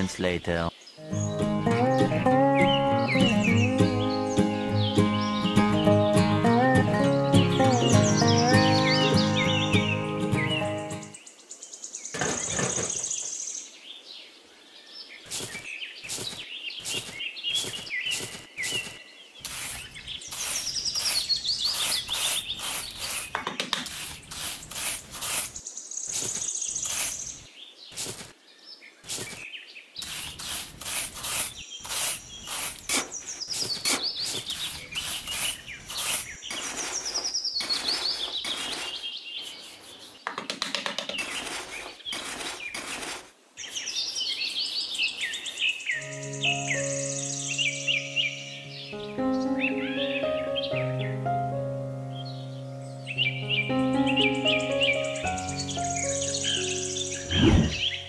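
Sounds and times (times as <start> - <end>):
birds chirping and trilling: 0.0 - 58.0
trowel scraping sand: 15.3 - 27.4, 28.0 - 28.3, 29.1 - 46.0.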